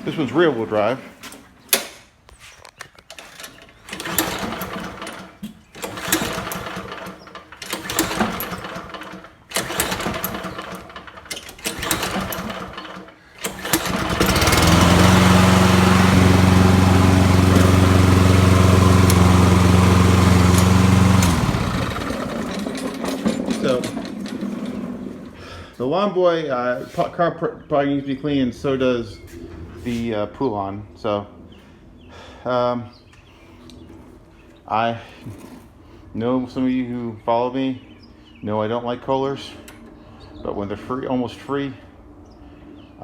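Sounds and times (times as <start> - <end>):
lawn mower engine running: 3.1 - 25.8
irregular clattering: 15.8 - 25.4.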